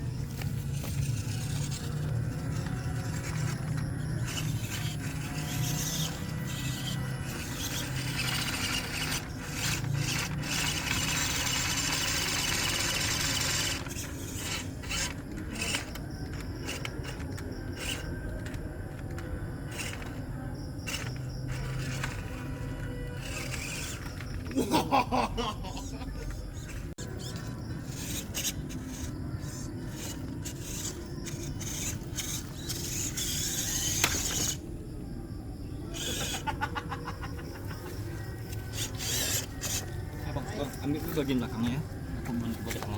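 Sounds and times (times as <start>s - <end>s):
tyres scrabbling on dirt: 0.0s - 24.6s, 37.5s - 42.9s
toy car motor whirring: 0.0s - 25.0s, 25.6s - 34.9s, 35.8s - 42.9s.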